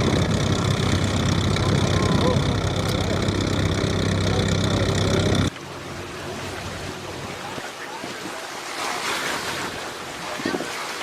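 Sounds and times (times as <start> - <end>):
heavy engine running: 0.0 - 5.9
steady rushing noise: 0.0 - 7.6.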